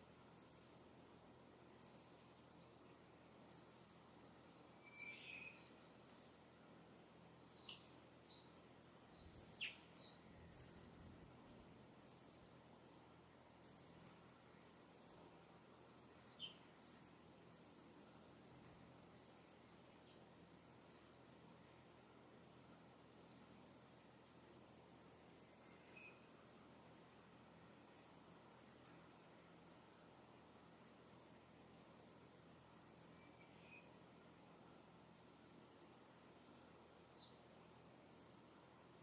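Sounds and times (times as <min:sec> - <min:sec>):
high buzzing bird trills: 0:00.3 - 0:00.8, 0:01.8 - 0:02.2, 0:03.5 - 0:06.5, 0:07.6 - 0:08.4, 0:09.1 - 0:11.0, 0:12.1 - 0:12.5, 0:13.6 - 0:14.1, 0:14.9 - 0:19.7, 0:20.4 - 0:28.6, 0:29.2 - 0:37.5, 0:38.1 - 0:39.0
lower bird chirps: 0:00.3 - 0:00.8, 0:01.7 - 0:06.6, 0:07.4 - 0:11.2, 0:12.0 - 0:12.6, 0:13.6 - 0:39.0.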